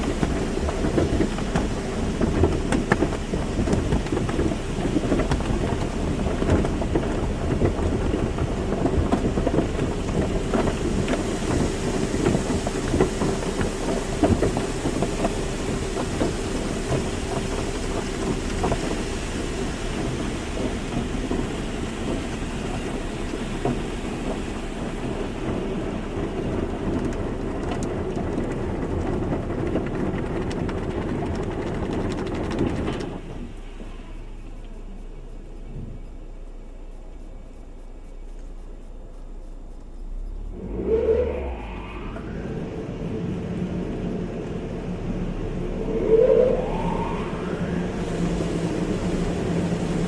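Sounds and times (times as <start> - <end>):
car wash spray and machinery: 0.0 - 50.0
low rumble: 0.0 - 50.0
faint steady hum: 33.1 - 50.0.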